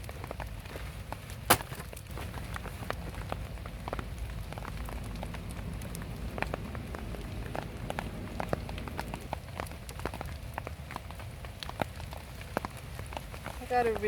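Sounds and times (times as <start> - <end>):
raindrops ticking on surfaces: 0.0 - 14.0
low steady rumble: 2.1 - 9.6.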